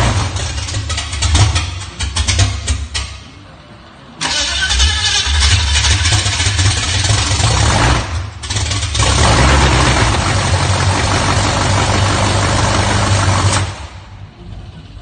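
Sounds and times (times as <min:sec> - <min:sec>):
car engine running loud: 0:05.5 - 0:15.0.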